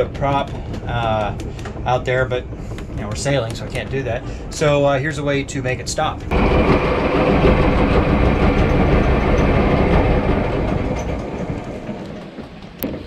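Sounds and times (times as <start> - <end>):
propeller shaft freewheeling: 0.0 - 13.0.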